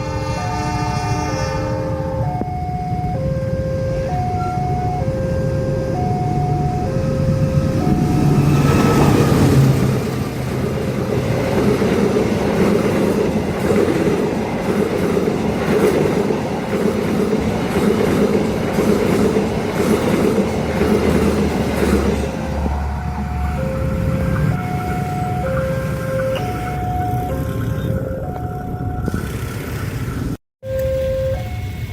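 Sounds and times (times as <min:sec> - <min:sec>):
train passing fast: 0:00.0 - 0:30.4
two-tone crossing warning chime: 0:01.7 - 0:17.1, 0:18.6 - 0:29.6, 0:30.6 - 0:31.9
carriages clattering over rail joints: 0:07.9 - 0:30.4.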